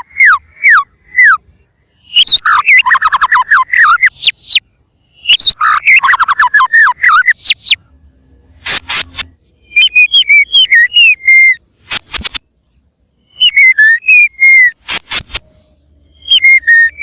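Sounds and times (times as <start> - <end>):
bird singing whistled notes: 0.0 - 11.7, 12.7 - 17.0.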